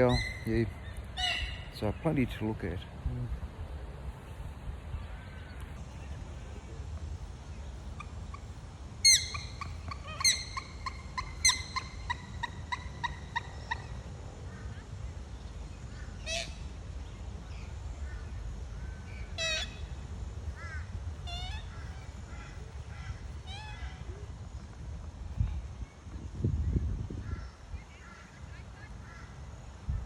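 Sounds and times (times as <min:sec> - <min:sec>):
bird harsh calls: 0:00.0 - 0:02.8, 0:07.8 - 0:15.0, 0:15.8 - 0:16.9, 0:17.5 - 0:24.2.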